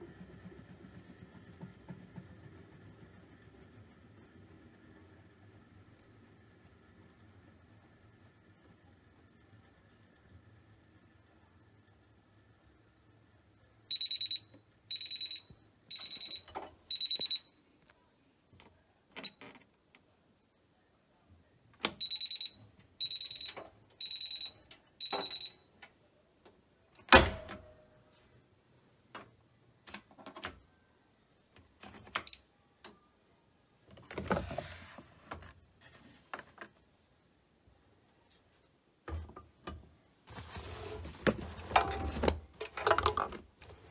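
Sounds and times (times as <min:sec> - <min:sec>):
scattered clicks and knocks: 0:00.0 - 0:03.4.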